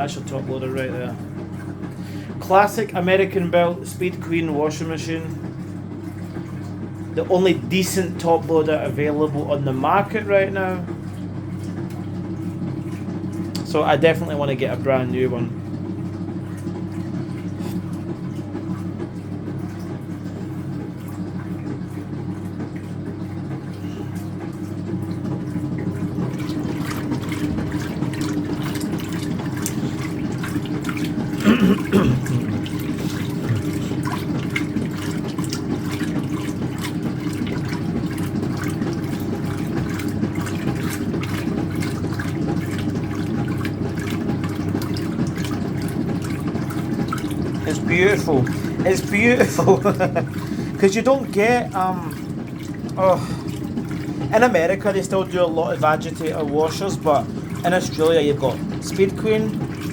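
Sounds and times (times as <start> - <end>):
washing machine motor hum: 0.0 - 59.9
water sloshing: 0.0 - 59.9.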